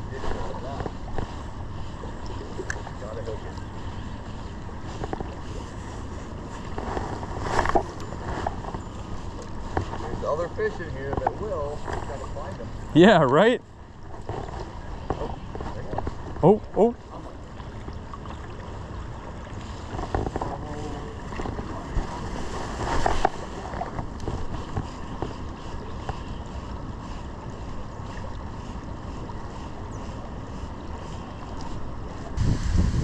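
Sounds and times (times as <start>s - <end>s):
wind buffeting microphone: 19.9s - 33.0s.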